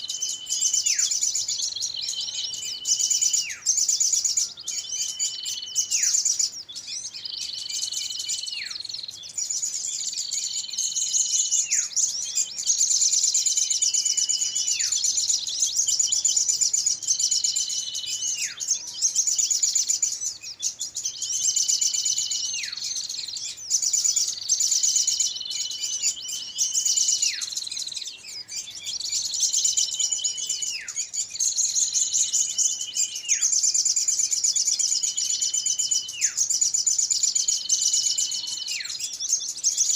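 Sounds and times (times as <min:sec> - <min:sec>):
whistled bird call: 0:00.0 - 0:39.9.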